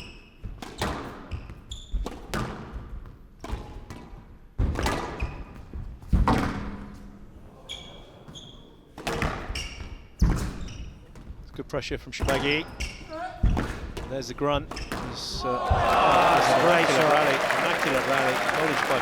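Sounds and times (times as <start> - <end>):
shoes squeaking on court floor: 1.3 - 2.1, 7.7 - 8.8, 9.4 - 11.3.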